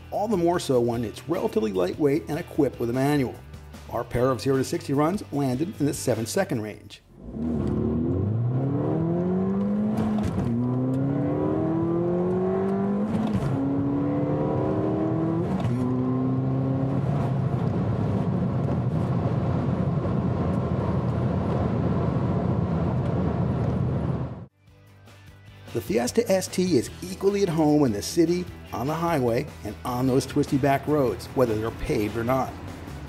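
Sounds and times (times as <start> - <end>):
road noise: 7.1 - 24.5, 27.5 - 33.0
car engine accelerating hard: 7.2 - 24.5.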